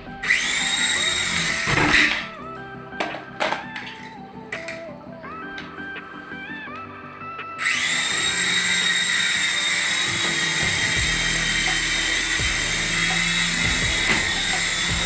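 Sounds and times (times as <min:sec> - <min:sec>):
beeping melody: 0:00.0 - 0:15.0
toy helicopter motor whining: 0:00.2 - 0:02.3, 0:07.6 - 0:15.0.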